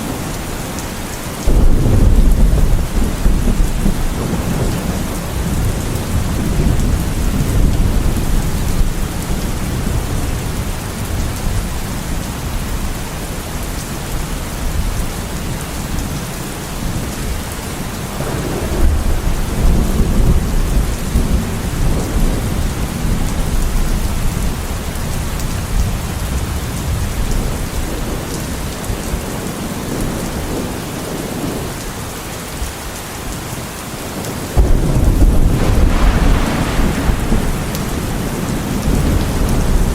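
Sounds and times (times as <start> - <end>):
heavy rain: 0.0 - 39.9
deep rolling thunder: 1.4 - 12.2, 18.2 - 29.0, 34.6 - 39.9.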